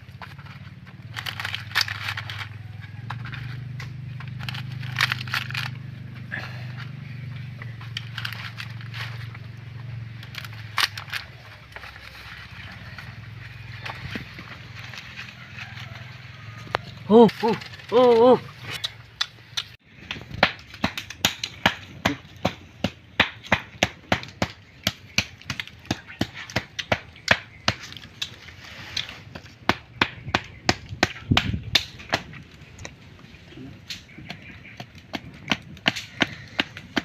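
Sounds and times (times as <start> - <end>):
sharp chopping strikes: 17.9 - 28.3, 29.4 - 32.4.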